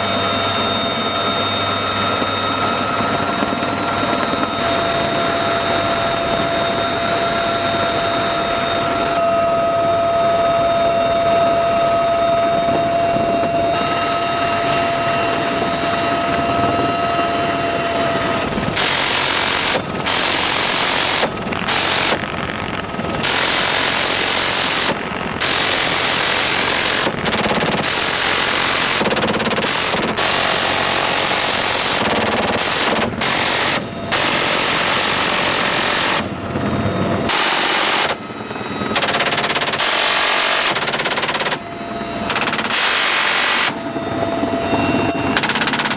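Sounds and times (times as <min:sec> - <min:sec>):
helicopter turbine whine: 0:00.0 - 0:45.9
machine-gun fire: 0:18.5 - 0:36.4, 0:37.3 - 0:38.2, 0:38.9 - 0:41.7, 0:42.3 - 0:43.8, 0:45.4 - 0:45.9.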